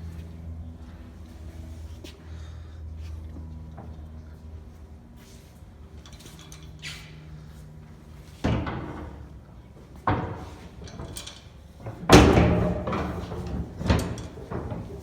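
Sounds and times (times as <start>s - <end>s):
heavy metal door clanks: 10.1s - 15.0s.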